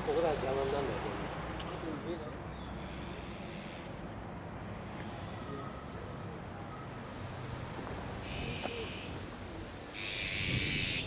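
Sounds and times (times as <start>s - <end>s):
harsh rasping bird call: 8.2s - 9.2s, 9.9s - 11.0s.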